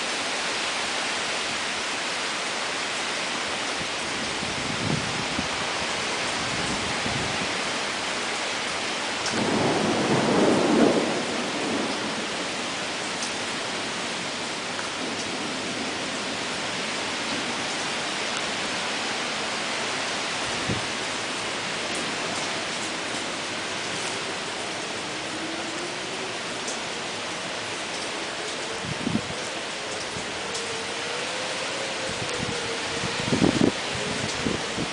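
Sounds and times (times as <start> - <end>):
heavy rain: 0.0 - 34.9
thunder rolling: 9.3 - 12.3.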